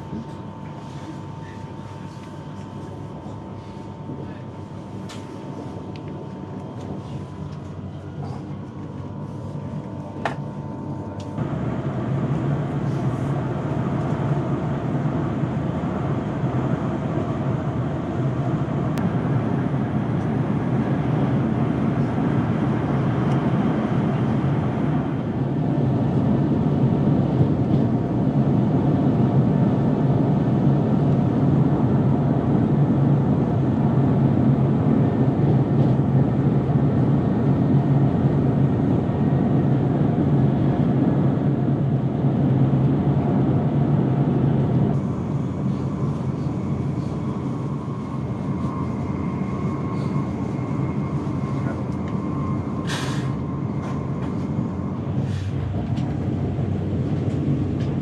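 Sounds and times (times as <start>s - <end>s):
train rumble inside coach: 0.0s - 58.0s
passing train rush: 43.1s - 58.0s.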